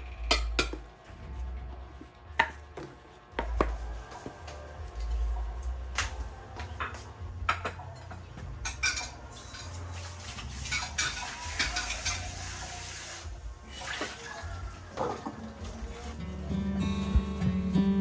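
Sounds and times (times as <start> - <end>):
dishes and utensils clinking: 6.8 - 12.8
tap water running: 9.3 - 16.2.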